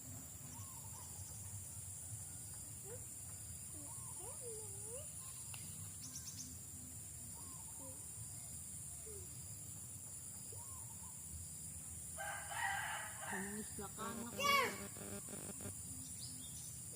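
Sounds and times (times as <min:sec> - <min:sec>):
insect chorus chirring: 0:00.0 - 0:16.9
swooping bird calls: 0:07.3 - 0:08.1.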